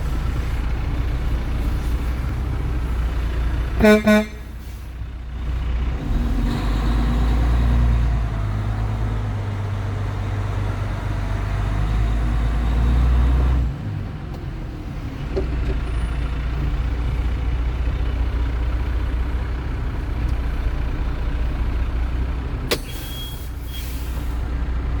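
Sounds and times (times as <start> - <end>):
diesel truck engine rumbling: 0.0 - 25.0.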